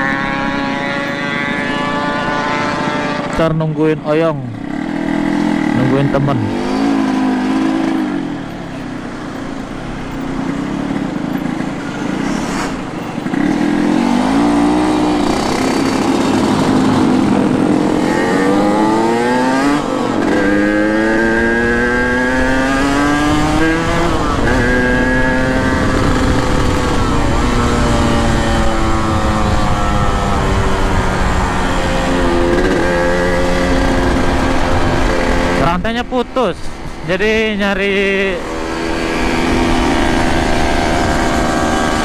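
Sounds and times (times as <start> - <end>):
two-stroke motorcycle engine revving: 0.0 - 42.0.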